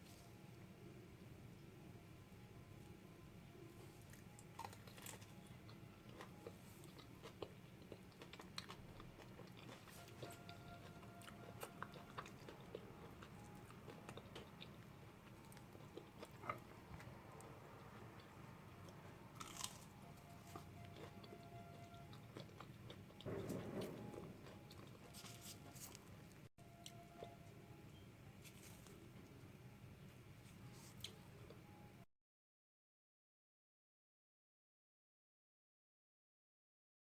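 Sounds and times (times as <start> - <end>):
crunching and chewing food: 3.5 - 31.8.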